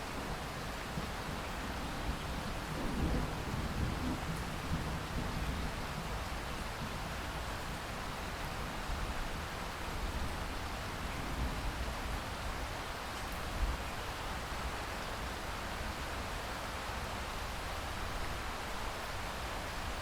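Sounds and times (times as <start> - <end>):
steady rainfall hiss: 0.0 - 20.0.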